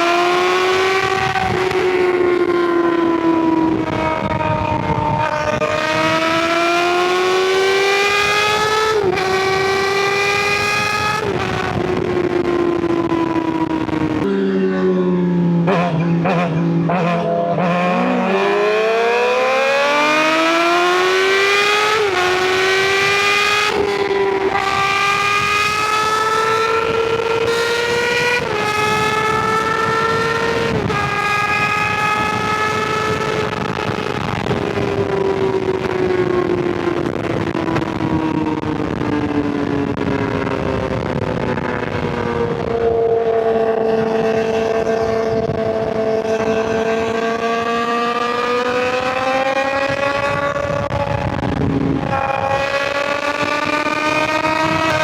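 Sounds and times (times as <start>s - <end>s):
motorcycle engine upshifting: 0.1s - 55.0s.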